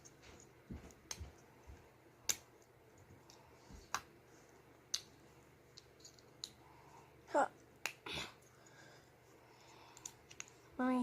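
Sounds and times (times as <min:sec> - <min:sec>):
soft thuds of handling pieces: 0:00.0 - 0:01.9.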